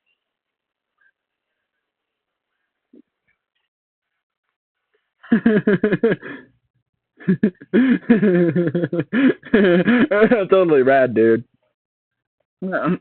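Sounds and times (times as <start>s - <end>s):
distorted voice-changer vocal noises: 9.6s - 11.5s.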